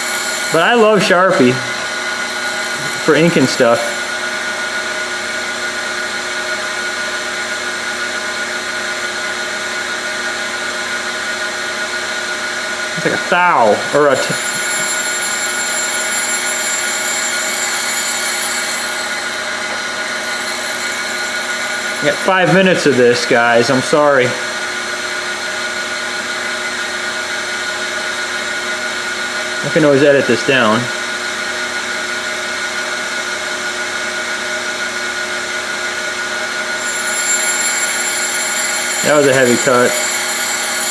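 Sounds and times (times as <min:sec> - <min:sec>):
grinder whining and hissing: 0:00.0 - 0:05.8, 0:12.9 - 0:24.1, 0:36.6 - 0:40.9.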